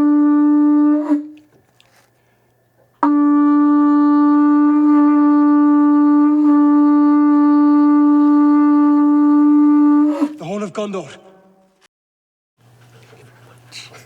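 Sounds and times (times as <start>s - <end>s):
horn blown with long note: 0.0s - 1.5s, 3.0s - 10.6s.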